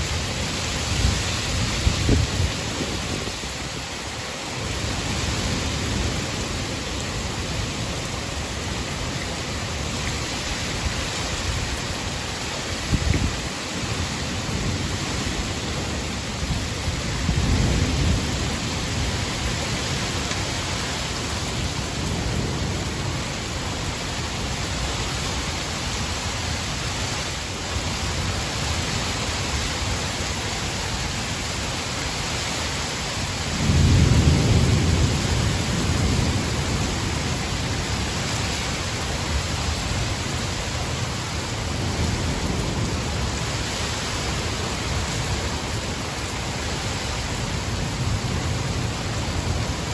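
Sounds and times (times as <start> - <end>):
heavy rain hissing: 0.0 - 49.9
thunder rumbling: 12.8 - 24.8, 33.5 - 43.6.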